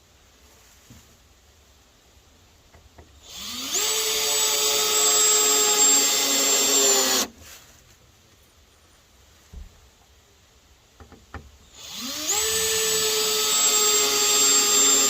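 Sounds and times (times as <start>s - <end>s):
power drill driving a screw: 3.2s - 7.3s, 11.8s - 15.0s.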